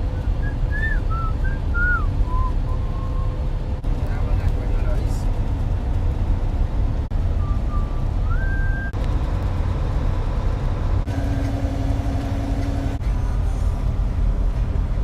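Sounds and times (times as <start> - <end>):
truck road and engine rumble: 0.0 - 15.0.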